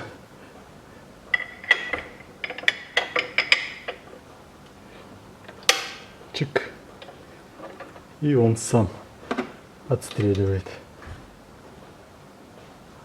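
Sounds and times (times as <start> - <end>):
metallic clicks and clinks: 1.3 - 4.1.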